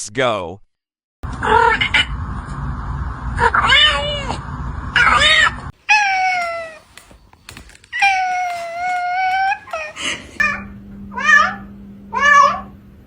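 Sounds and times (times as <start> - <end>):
steady background rumble: 1.3 - 5.7
kitten meowing: 7.9 - 12.7.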